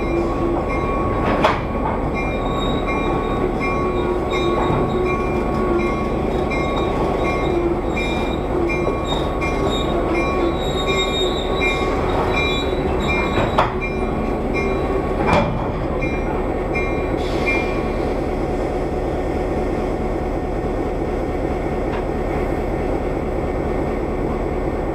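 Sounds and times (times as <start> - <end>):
train low rumble: 0.0 - 24.9
high-pitched wheel squeal: 7.2 - 13.7.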